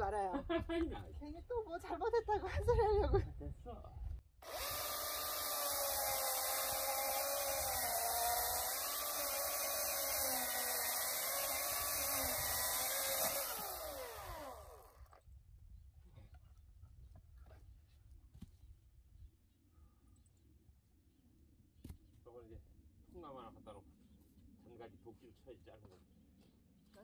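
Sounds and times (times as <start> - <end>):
electric chainsaw cutting wood: 4.4 - 15.2.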